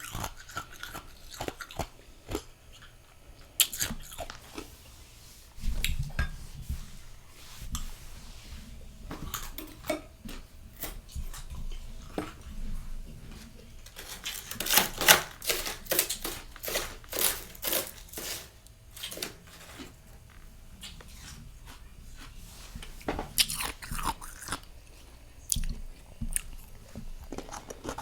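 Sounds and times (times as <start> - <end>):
frost crunching while chewed: 0.0 - 4.7, 13.8 - 22.4, 23.4 - 28.0.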